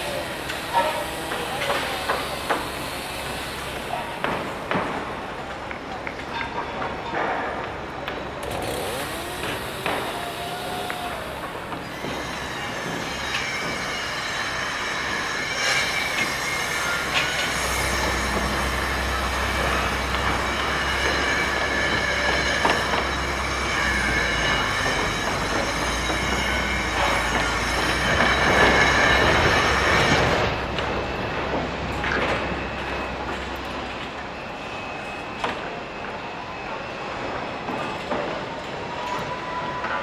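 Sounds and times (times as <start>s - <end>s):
high metal-on-metal squealing: 8.4s - 38.0s.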